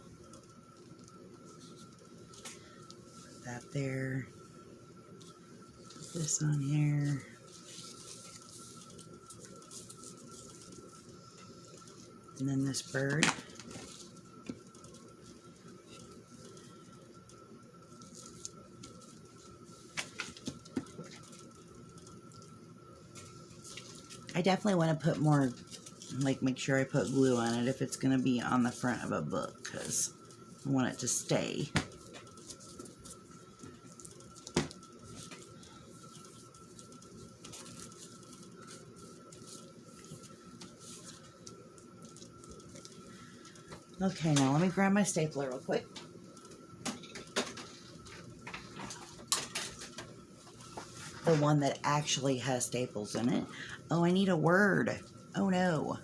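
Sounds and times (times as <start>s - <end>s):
faint high-pitched hum: 0.0s - 56.0s
paper rustling: 5.2s - 16.8s, 18.0s - 22.5s, 23.1s - 51.6s
paper rustling and tapping: 19.9s - 21.4s, 31.6s - 44.7s.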